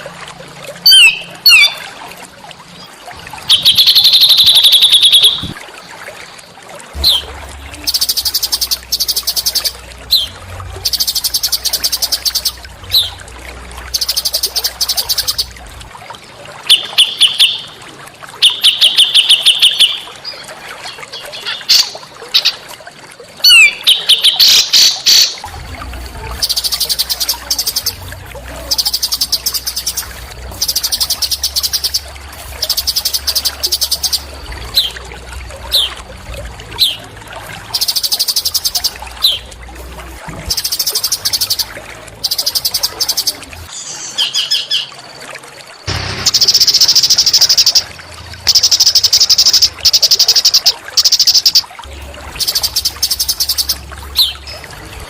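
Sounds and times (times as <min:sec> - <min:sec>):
songbird buzzy trills: 0:02.8 - 0:05.6, 0:07.0 - 0:15.7, 0:23.4 - 0:36.1, 0:36.7 - 0:39.6, 0:40.5 - 0:44.9, 0:45.8 - 0:54.8
low hum: 0:07.0 - 0:16.0, 0:25.5 - 0:37.8
sharp downslurred chirps: 0:45.9 - 0:51.6.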